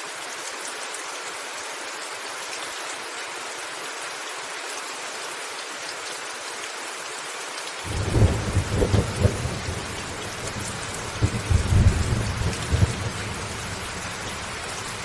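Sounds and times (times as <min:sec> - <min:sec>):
heavy rain on a roof: 0:00.0 - 0:15.0
thunder rumbling: 0:07.9 - 0:15.0.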